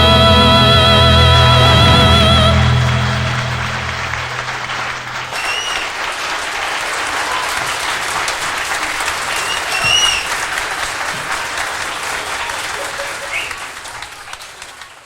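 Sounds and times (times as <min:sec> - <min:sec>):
sustained music notes: 0:00.0 - 0:05.8
audience applauding: 0:00.0 - 0:15.0.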